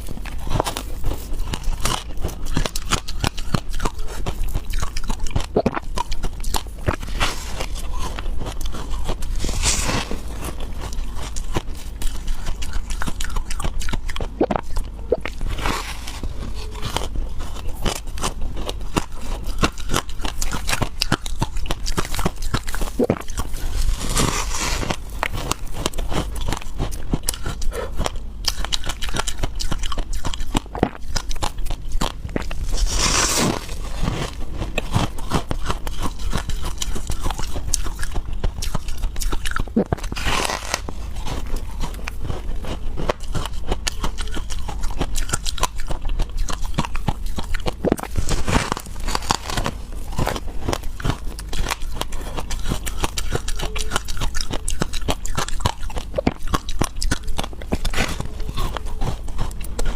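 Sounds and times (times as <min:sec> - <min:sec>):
person crunching and chewing ice: 0:00.0 - 0:59.9.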